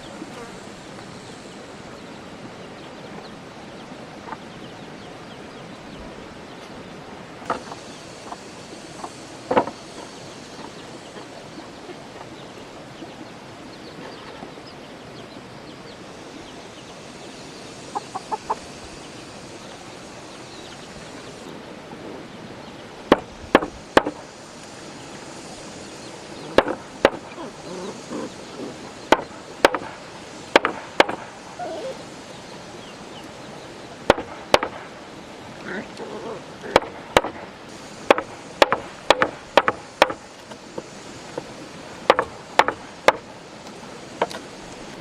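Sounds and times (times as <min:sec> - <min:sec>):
sharp knocks: 0:09.5 - 0:09.8, 0:23.1 - 0:24.3, 0:26.6 - 0:27.4, 0:29.1 - 0:31.4, 0:34.1 - 0:34.9, 0:36.7 - 0:41.4, 0:42.0 - 0:43.3
fowl clucking: 0:17.8 - 0:19.0.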